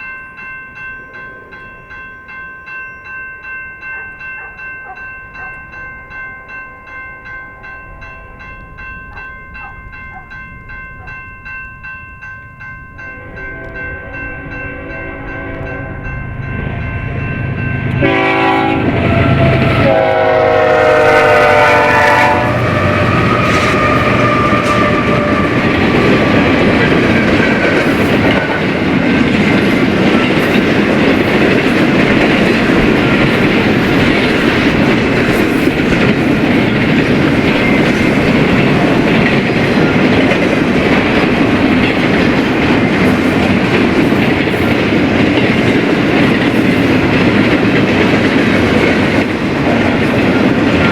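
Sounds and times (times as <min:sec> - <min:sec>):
train cars rumbling: 0:00.0 - 0:50.9
train horn blasts: 0:13.1 - 0:16.4, 0:17.8 - 0:26.6
wheel clickety-clack: 0:22.8 - 0:50.9.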